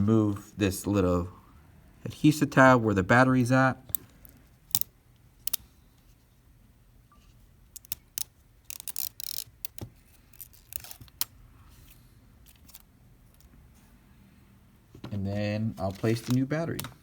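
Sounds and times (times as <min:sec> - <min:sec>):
tools clicking on phone: 0:03.9 - 0:05.7, 0:07.7 - 0:11.3
adhesive tab crackling rip: 0:07.8 - 0:11.3.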